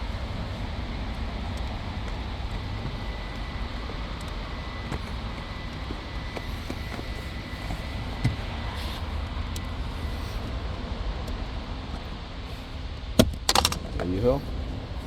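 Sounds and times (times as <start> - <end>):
steady low rumble: 0.0 - 15.0
plastic clicks: 13.2 - 13.8.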